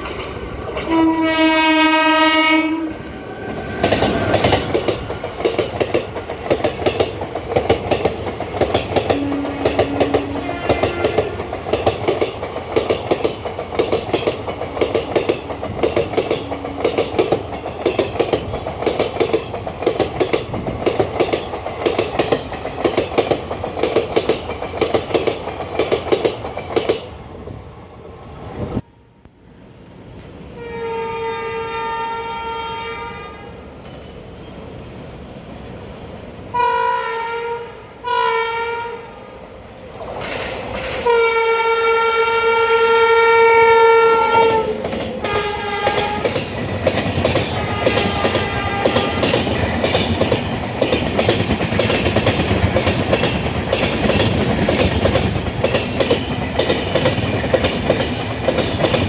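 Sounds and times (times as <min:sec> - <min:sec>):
train wheels clattering over rails: 0:00.0 - 0:02.1, 0:03.0 - 0:27.2, 0:39.9 - 0:41.5, 0:44.0 - 0:59.0
locomotive horn blasts: 0:00.9 - 0:03.0, 0:09.1 - 0:11.4, 0:30.6 - 0:33.6, 0:36.5 - 0:39.2, 0:41.0 - 0:46.4, 0:47.6 - 0:49.3.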